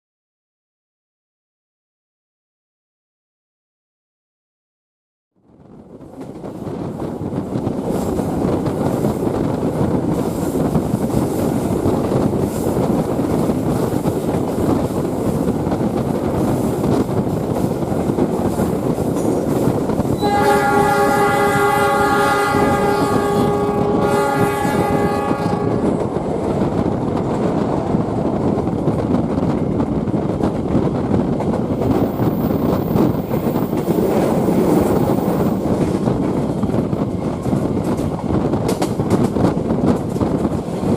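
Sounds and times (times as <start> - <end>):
train rumble with wheel clatter: 5.4 - 40.9
locomotive horn chord: 20.2 - 26.0.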